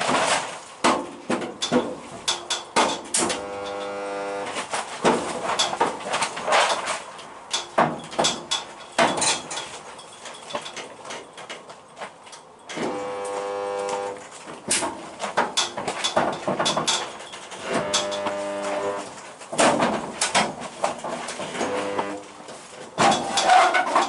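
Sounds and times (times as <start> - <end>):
sharp metal knocks and taps: 0.8 - 3.9, 7.5 - 9.8
buzzing hum: 3.1 - 4.6, 12.8 - 14.2, 17.6 - 19.2, 21.5 - 22.3.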